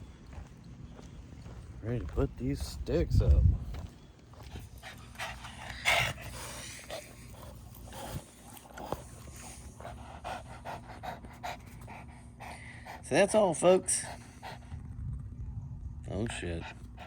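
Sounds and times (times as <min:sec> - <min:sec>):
panting breaths: 0:04.4 - 0:15.0, 0:16.3 - 0:17.0.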